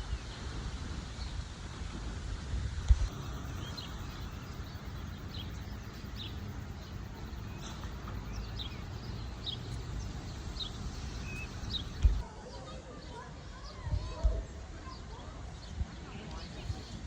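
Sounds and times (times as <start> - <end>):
steady low rumble: 2.1 - 12.2
birds chirping: 3.0 - 12.2.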